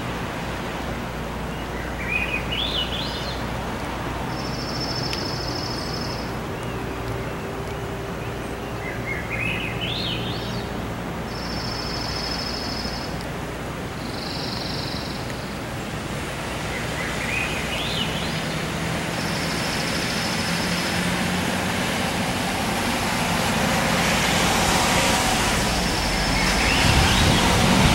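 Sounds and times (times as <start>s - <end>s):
steady rushing noise: 15.3s - 27.9s
rising chirped bird notes: 25.8s - 27.9s.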